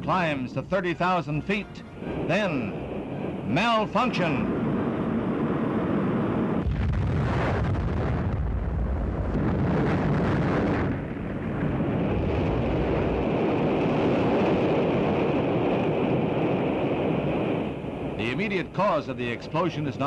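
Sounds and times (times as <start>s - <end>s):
deep explosion boom: 4.4s - 18.2s.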